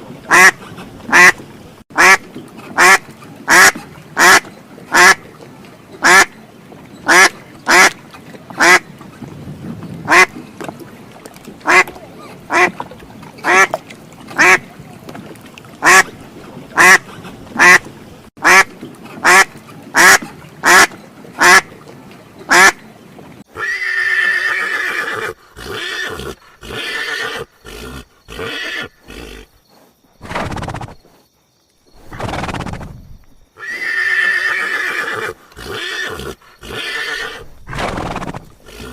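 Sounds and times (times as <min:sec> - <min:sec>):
duck quacking: 0:00.3 - 0:01.4, 0:02.0 - 0:02.2, 0:02.8 - 0:05.2, 0:06.0 - 0:06.3, 0:07.1 - 0:08.0, 0:08.6 - 0:08.8, 0:10.1 - 0:10.3, 0:11.6 - 0:11.9, 0:12.5 - 0:12.8, 0:13.4 - 0:13.8, 0:14.4 - 0:14.6, 0:15.8 - 0:16.1, 0:16.8 - 0:17.8, 0:18.4 - 0:21.7, 0:22.5 - 0:22.8
horse whinnying: 0:23.6 - 0:29.5, 0:32.0 - 0:32.9, 0:33.6 - 0:38.9.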